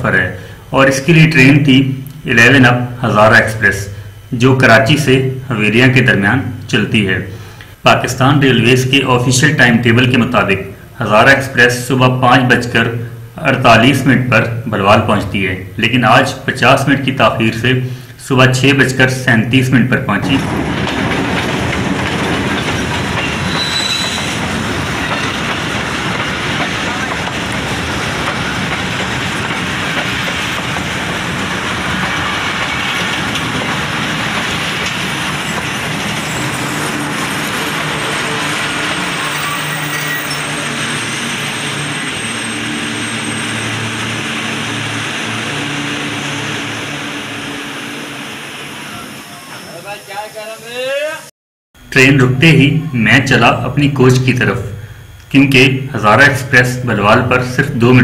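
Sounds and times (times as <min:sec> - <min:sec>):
train wheels on rails: 0:20.1 - 0:51.3.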